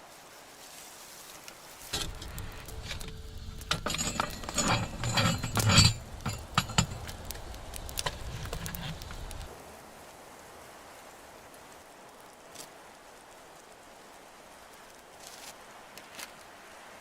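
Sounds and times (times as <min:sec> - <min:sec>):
hard objects clinking: 0:02.0 - 0:09.5
low rumble: 0:02.0 - 0:09.5.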